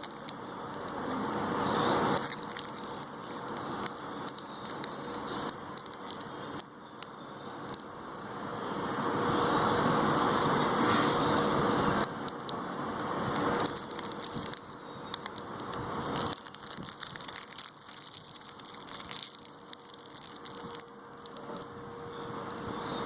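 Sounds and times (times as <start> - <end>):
plastic candy wrappers crinkling: 0.0 - 1.2, 2.0 - 6.7, 13.2 - 21.7, 22.4 - 23.0.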